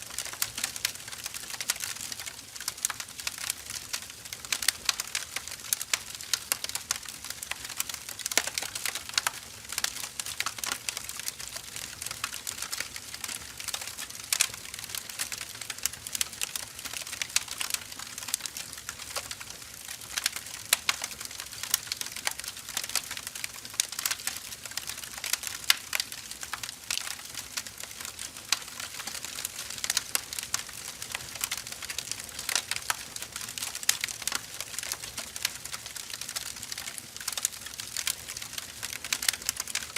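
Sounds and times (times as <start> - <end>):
firewood crackling and popping: 0.0 - 39.9.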